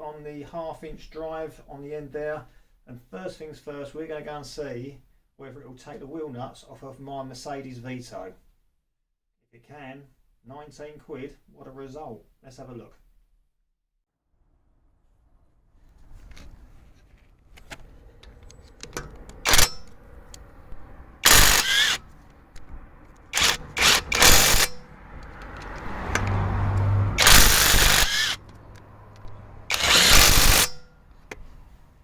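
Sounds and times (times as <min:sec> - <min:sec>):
impact driver hammering wheel nuts: 0:19.0 - 0:20.0, 0:21.2 - 0:22.1, 0:23.3 - 0:26.3, 0:27.2 - 0:30.9.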